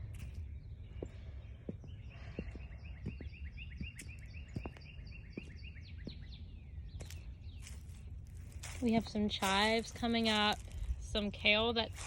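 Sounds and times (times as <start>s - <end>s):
low outdoor rumble: 5.8s - 12.0s.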